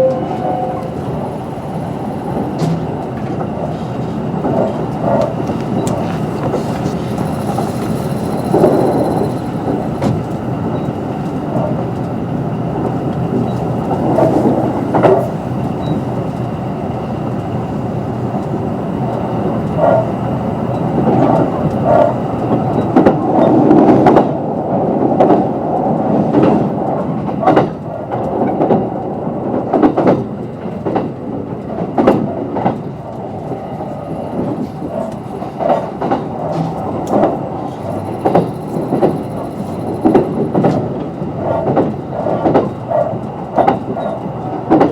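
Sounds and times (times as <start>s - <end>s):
electric train rumbling: 0.0s - 44.9s
wheels clicking over rail joints: 25.0s - 44.9s.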